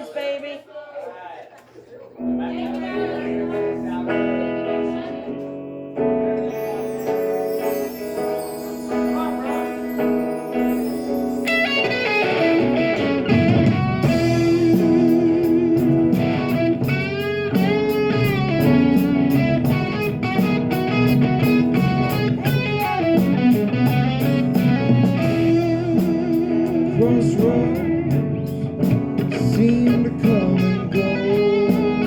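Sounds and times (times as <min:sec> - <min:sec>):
electric guitar melody: 0:02.2 - 0:32.0
drums and cymbal beat: 0:06.8 - 0:32.0.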